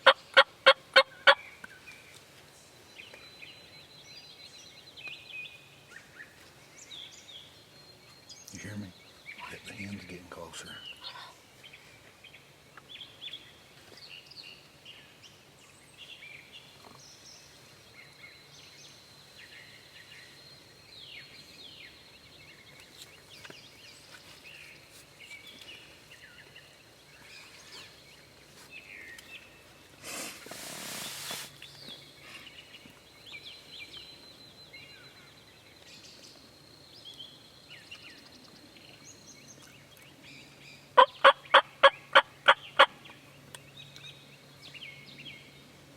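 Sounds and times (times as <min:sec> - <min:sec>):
songbirds chirping and trilling: 0:00.0 - 0:45.9
rustling noise: 0:22.8 - 0:26.2, 0:27.2 - 0:32.5.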